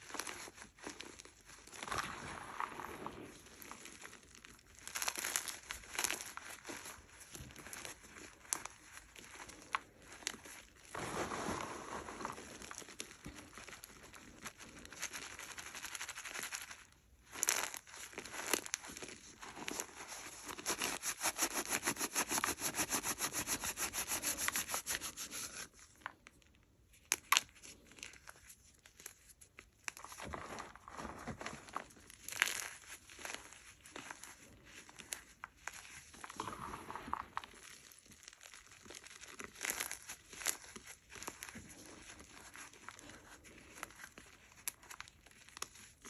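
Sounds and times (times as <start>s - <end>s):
chalk crunching between fingers: 17.5s - 25.9s.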